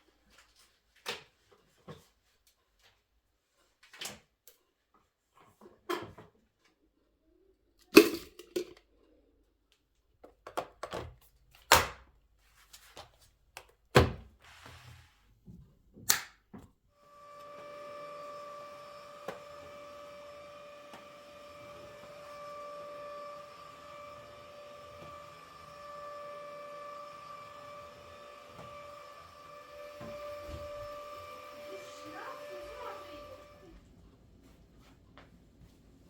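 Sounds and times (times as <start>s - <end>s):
electric appliance humming: 17.0s - 34.4s.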